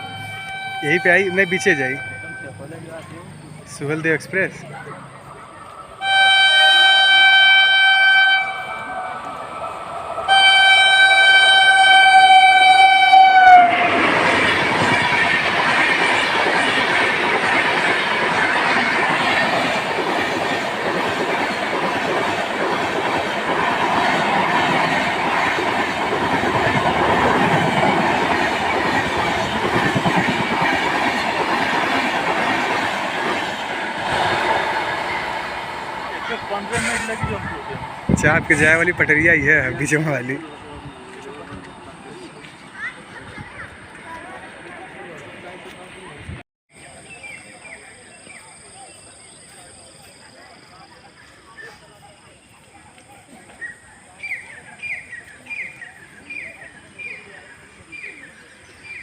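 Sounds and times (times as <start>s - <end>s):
train horn blasts: 0.0s - 2.6s, 6.0s - 9.3s, 10.3s - 13.9s
train wheels clattering on rails: 13.9s - 40.2s.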